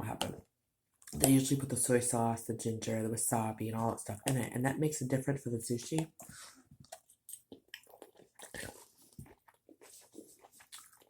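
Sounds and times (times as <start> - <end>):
person chewing food: 6.1 - 11.0.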